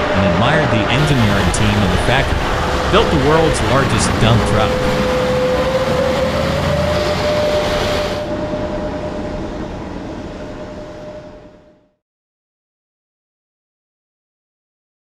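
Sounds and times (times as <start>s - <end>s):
dump truck running: 0.0s - 10.7s
steady whine: 0.0s - 12.0s.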